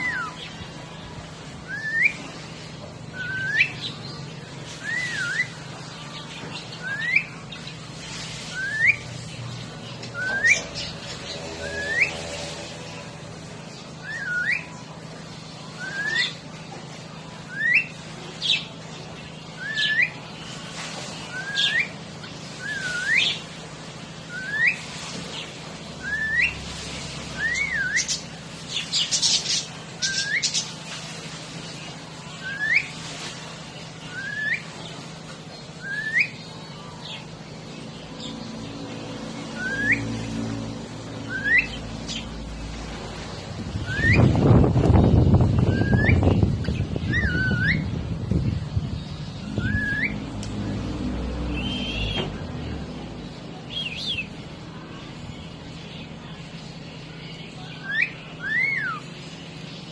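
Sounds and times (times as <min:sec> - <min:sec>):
cockatiel whistling: 0:01.7 - 0:02.2, 0:03.2 - 0:03.8, 0:08.5 - 0:09.0, 0:10.2 - 0:10.6, 0:14.0 - 0:14.7, 0:15.8 - 0:16.4, 0:22.6 - 0:23.4, 0:24.3 - 0:24.8, 0:26.0 - 0:26.6, 0:27.4 - 0:28.2, 0:34.1 - 0:34.6, 0:35.8 - 0:36.4, 0:39.6 - 0:40.0, 0:41.3 - 0:41.8, 0:43.8 - 0:44.3, 0:45.6 - 0:46.2, 0:47.0 - 0:47.8, 0:49.6 - 0:50.2, 0:51.6 - 0:52.3, 0:57.8 - 0:59.0
high bird chirps: 0:21.2 - 0:23.5, 0:24.3 - 0:30.8, 0:41.1 - 0:42.6, 0:43.6 - 0:50.4, 0:51.5 - 0:52.5, 0:53.7 - 0:54.4.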